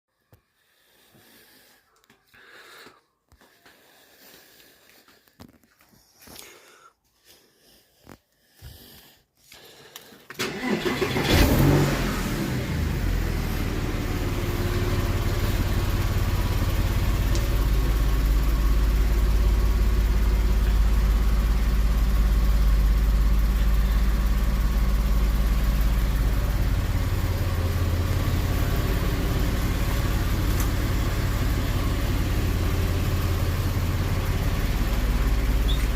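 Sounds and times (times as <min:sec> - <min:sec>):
starter motor cranking: 0:10.3 - 0:11.9
car engine idling: 0:10.4 - 0:35.9.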